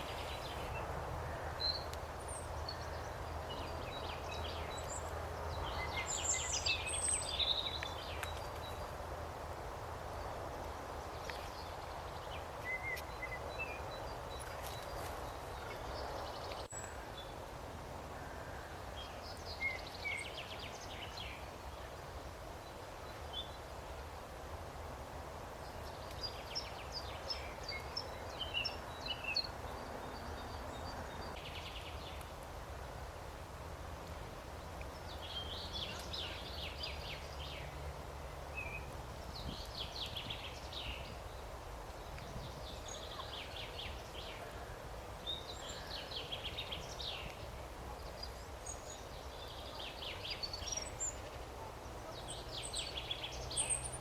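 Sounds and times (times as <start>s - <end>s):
songbirds singing trills: 0.0s - 9.0s, 10.2s - 17.4s, 25.6s - 32.4s, 34.8s - 37.9s, 38.5s - 54.0s
outdoor background hiss: 0.0s - 54.0s.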